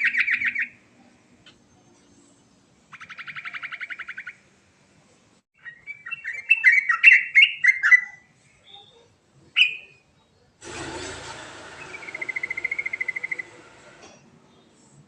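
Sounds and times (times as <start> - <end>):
bird trilling and warbling: 11.8 - 13.6.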